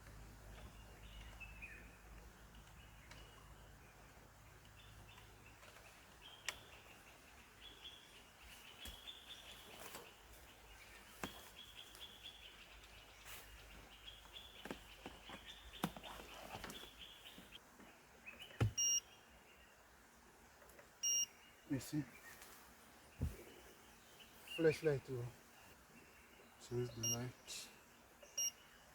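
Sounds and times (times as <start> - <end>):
short electronic beep: 18.7 - 19.0, 21.0 - 21.3.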